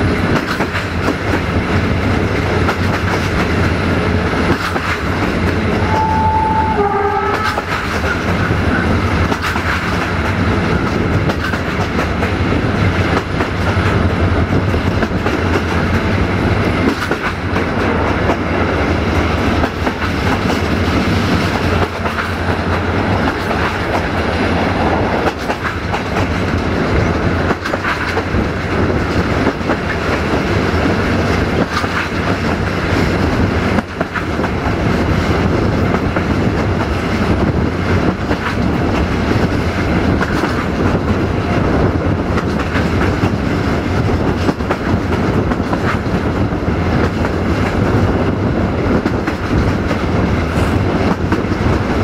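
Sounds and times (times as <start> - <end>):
train rumble: 0.0 - 52.0
train horn: 5.7 - 7.8
wheel clatter over rail joints: 7.4 - 52.0.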